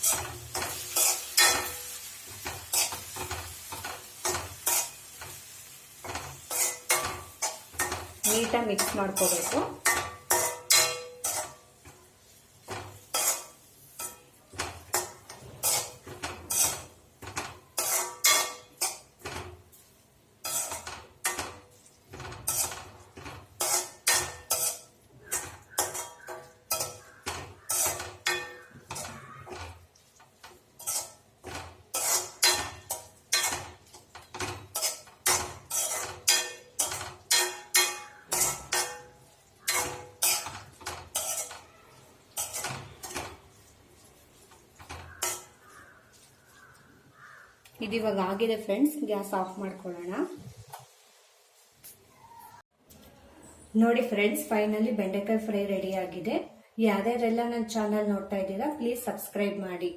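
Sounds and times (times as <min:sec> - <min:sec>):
utensil scraping a cooking pan: 0:00.0 - 0:47.6.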